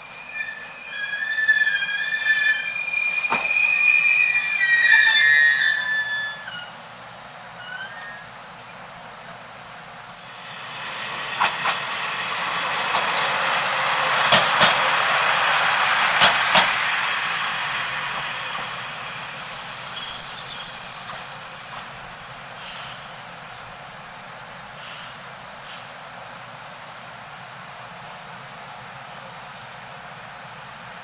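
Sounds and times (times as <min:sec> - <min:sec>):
high wheel squeal: 0:00.0 - 0:06.8, 0:07.6 - 0:08.3, 0:10.4 - 0:23.0, 0:24.8 - 0:25.5
train rumbling past: 0:00.0 - 0:31.0
wheels clicking over rail joints: 0:11.3 - 0:17.3.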